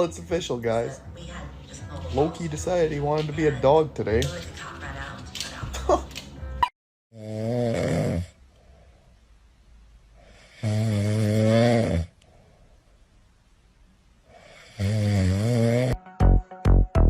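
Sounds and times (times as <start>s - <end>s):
pet snoring: 7.2s - 8.4s, 10.2s - 12.2s, 14.3s - 16.0s
soft breaths: 8.4s - 10.7s, 12.1s - 13.4s.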